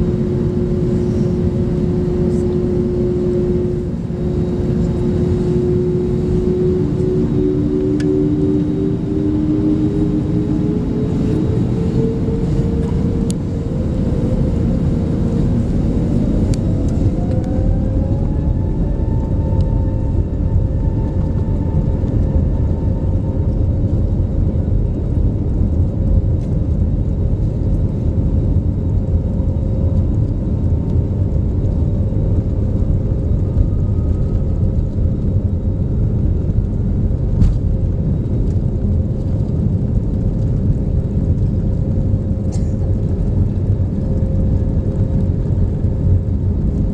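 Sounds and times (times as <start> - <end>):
jet engine rumble and whine: 0.0 - 46.9.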